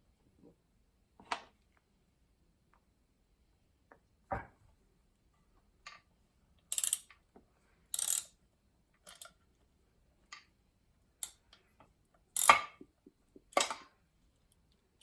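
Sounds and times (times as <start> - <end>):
ratchet wrench clicking: 6.7 - 7.2, 7.9 - 8.4, 9.1 - 9.3, 12.4 - 12.7.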